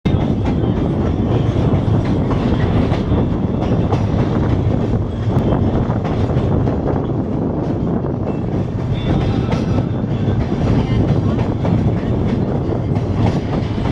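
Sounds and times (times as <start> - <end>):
train rumbling on rails: 0.0 - 13.9.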